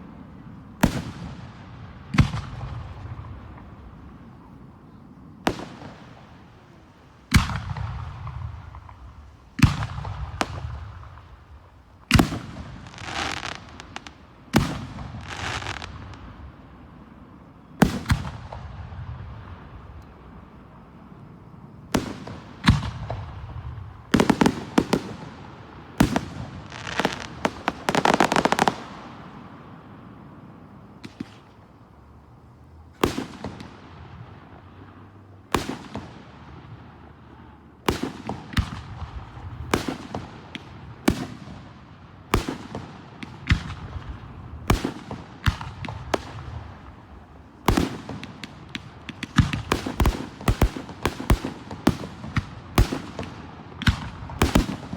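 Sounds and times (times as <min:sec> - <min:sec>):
firework crackle: 0:00.0 - 0:54.9
firework shells bursting: 0:21.4 - 0:29.1.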